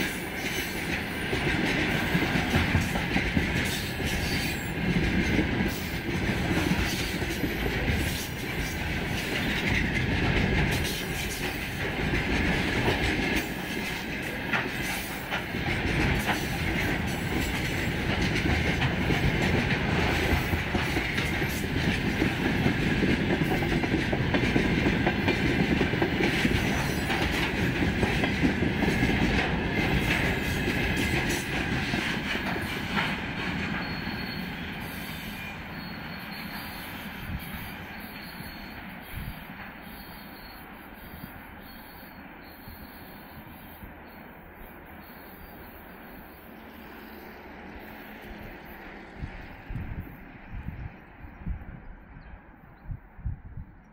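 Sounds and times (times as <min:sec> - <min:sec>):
train rumble: 0:00.0 - 0:53.9.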